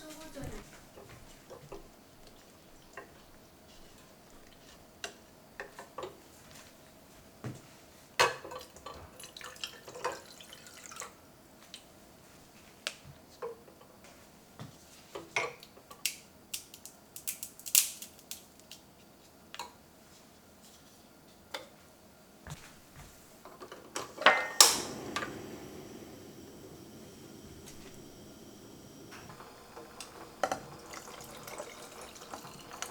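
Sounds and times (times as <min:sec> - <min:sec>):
loud long noisy sound: 0:24.6 - 0:30.7.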